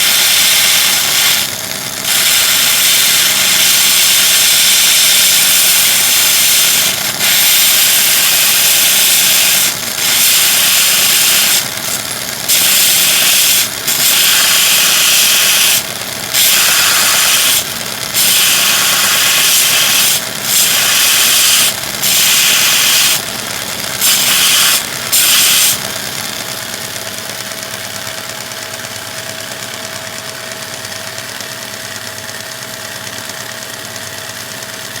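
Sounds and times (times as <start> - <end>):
belt grinder grinding metal: 0.0 - 26.7
motor and belt running: 0.0 - 35.0.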